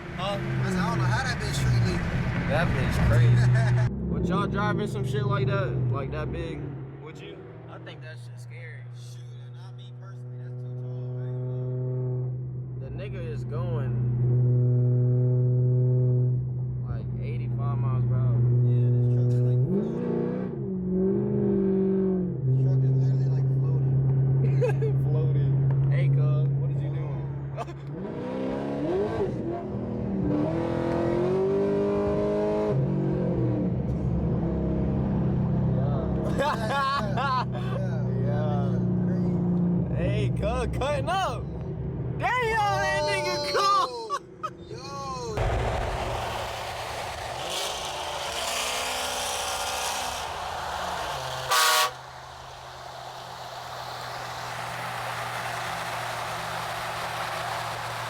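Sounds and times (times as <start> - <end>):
vehicle engines running: 0.0 - 9.8, 45.0 - 58.0
vehicle engine revving: 0.0 - 41.0, 45.4 - 58.0
car horn toot: 51.5 - 52.2.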